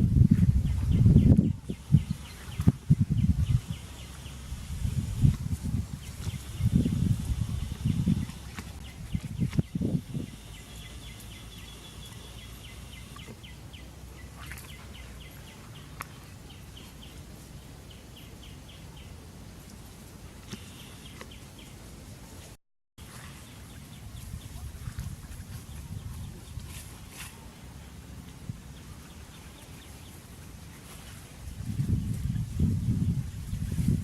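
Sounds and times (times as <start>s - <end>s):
dull low thumps: 0.0s - 11.5s
steady low rumble: 0.0s - 20.4s
birds chirping: 0.6s - 17.2s, 20.4s - 21.8s.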